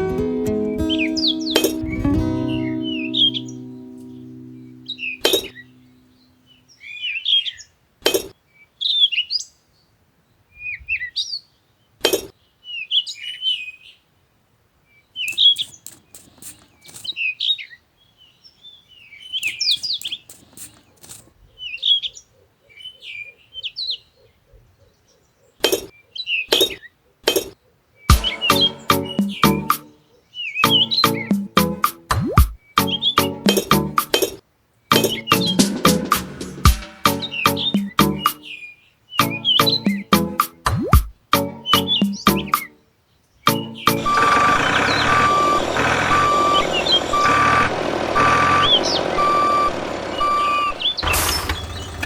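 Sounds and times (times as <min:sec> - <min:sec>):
small birds twittering: 0:00.7 - 0:14.0, 0:14.8 - 0:36.2, 0:37.0 - 0:40.4, 0:41.5 - 0:52.0
sharp clicks or knocks: 0:15.3 - 0:17.2, 0:19.4 - 0:21.3.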